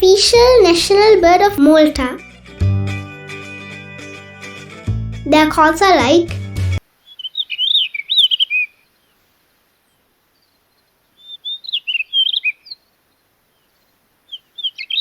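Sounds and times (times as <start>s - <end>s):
bird song of whistled notes: 7.0s - 9.2s, 9.9s - 15.0s.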